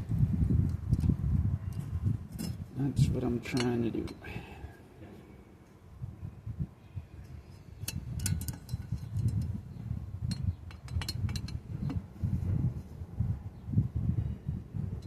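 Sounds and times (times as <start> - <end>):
light metal clicks and clinks: 3.5 - 4.3, 7.8 - 9.6.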